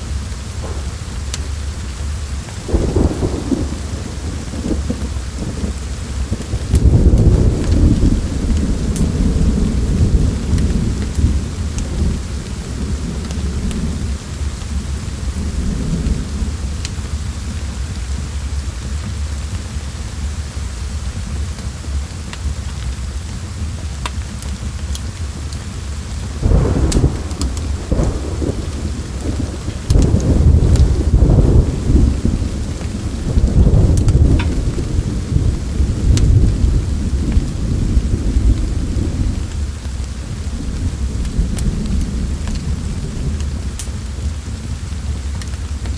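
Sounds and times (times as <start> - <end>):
thunder rumbling: 0.0 - 19.0, 24.6 - 45.9
steady rain: 0.0 - 45.9
sharp crackles: 0.1 - 14.8, 24.0 - 45.9.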